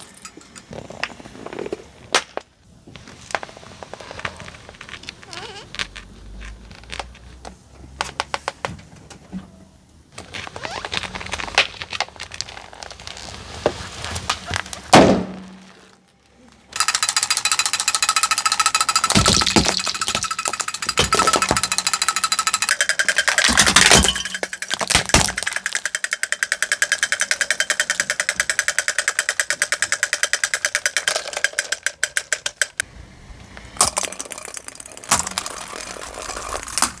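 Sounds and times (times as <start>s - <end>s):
clicking rattle with ringing tone: 0.0s - 0.8s, 16.8s - 32.9s
plastic toys cracking under tyre: 10.2s - 32.9s, 33.5s - 37.0s.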